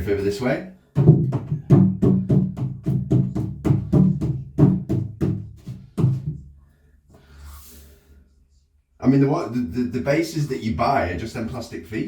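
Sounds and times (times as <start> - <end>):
music with percussive beat: 1.0 - 6.4.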